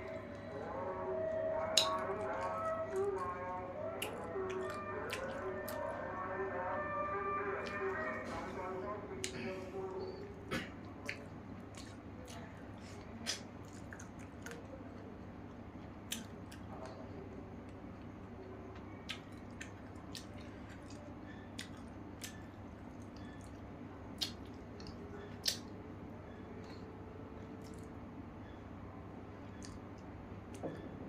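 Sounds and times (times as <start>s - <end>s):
steady low hum: 0.0s - 31.0s
wet chewing and mouth smacks: 1.6s - 5.9s, 11.0s - 12.5s, 13.2s - 14.7s, 15.8s - 17.0s, 18.8s - 25.8s, 27.4s - 28.0s, 29.5s - 30.6s.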